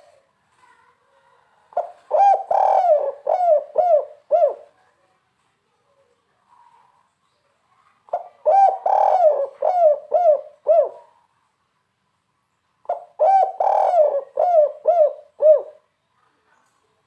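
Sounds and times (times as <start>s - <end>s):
dove cooing: 1.7s - 4.8s, 8.1s - 11.3s, 12.9s - 15.8s.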